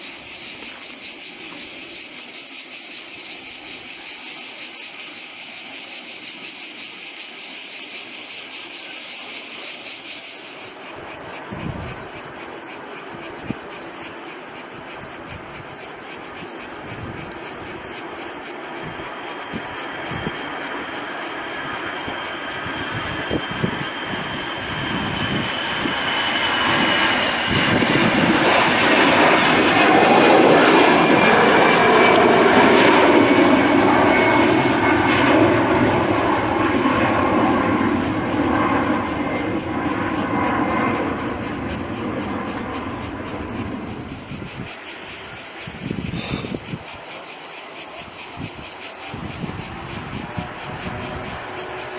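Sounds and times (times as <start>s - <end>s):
jet airliner engine: 0.0s - 51.9s
engine whine: 16.3s - 46.5s, 49.2s - 51.9s.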